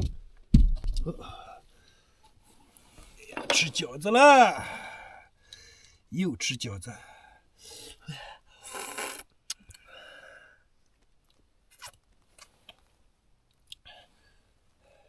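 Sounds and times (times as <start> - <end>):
man chewing and biting: 11.7 - 12.8.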